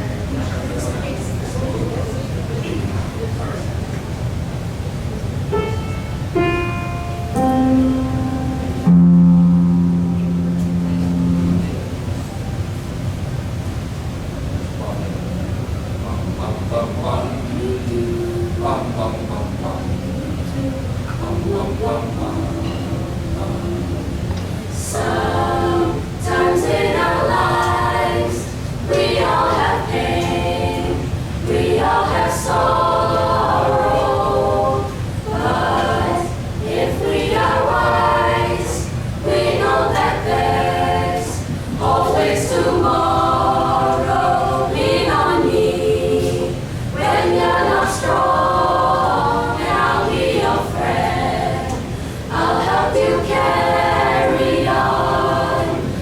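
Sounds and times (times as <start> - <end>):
group singing a cappella: 7.3 - 12.3, 16.2 - 56.0.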